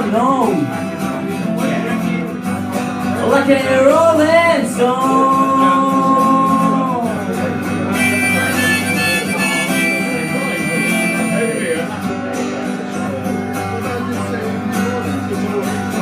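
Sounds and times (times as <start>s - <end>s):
strummed guitar chords: 0.0s - 16.0s
person singing: 3.0s - 12.0s
harmonica playing: 7.9s - 12.0s.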